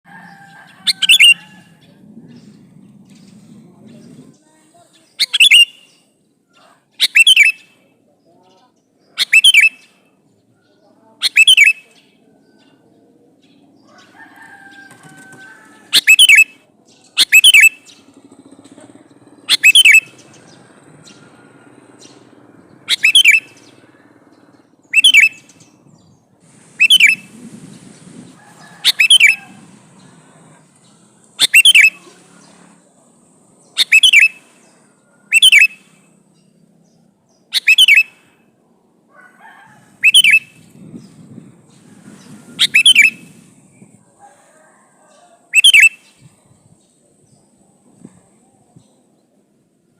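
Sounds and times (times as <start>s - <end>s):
bulbul calling: 0.3s - 3.5s, 4.9s - 7.8s, 8.6s - 10.0s, 10.6s - 12.8s, 15.2s - 32.8s, 33.6s - 38.5s, 39.8s - 44.0s, 45.5s - 46.4s.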